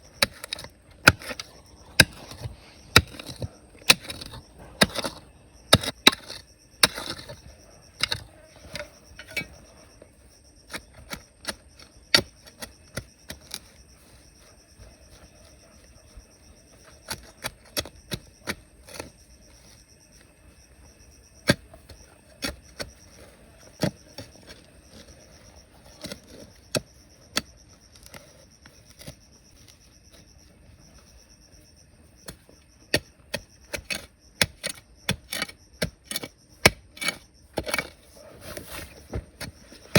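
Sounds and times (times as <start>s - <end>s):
hand tools striking rock: 0.0s - 9.6s, 10.6s - 13.7s, 16.8s - 19.2s, 21.4s - 29.2s, 32.2s - 39.9s.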